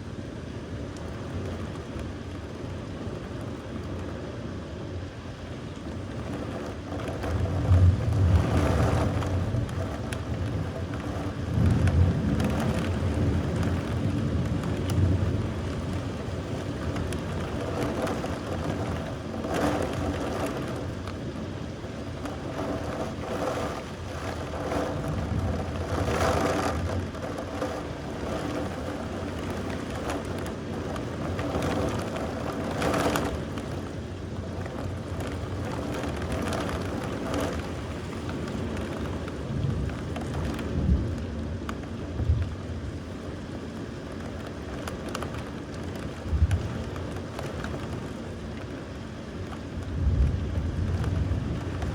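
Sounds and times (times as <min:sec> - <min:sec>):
steady rain: 0:00.0 - 0:51.9
rumbles of thunder: 0:07.2 - 0:16.3, 0:49.9 - 0:51.9.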